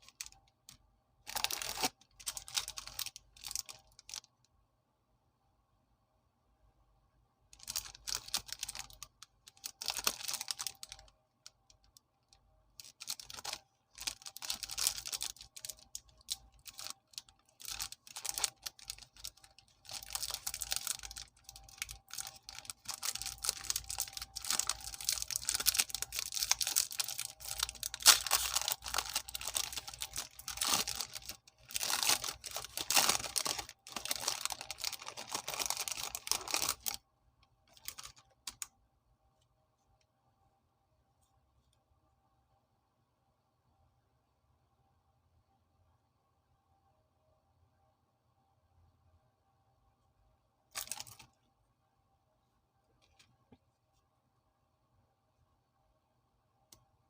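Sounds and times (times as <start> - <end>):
plastic wrapper crinkling: 0.0 - 4.3, 7.6 - 37.0, 37.7 - 38.7, 50.7 - 51.3.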